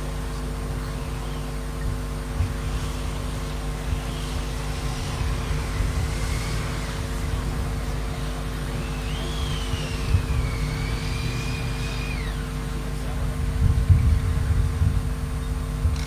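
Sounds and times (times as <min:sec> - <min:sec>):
constant hum: 0:00.0 - 0:16.0.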